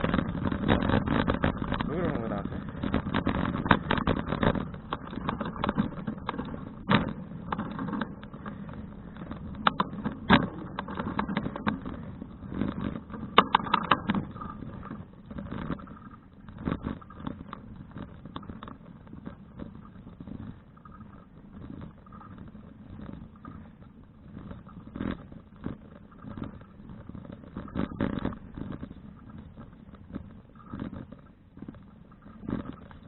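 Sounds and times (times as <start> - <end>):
bicycle rattles and knocks: 0.0 - 33.0
bicycle rumbling on rough surface: 0.0 - 33.0.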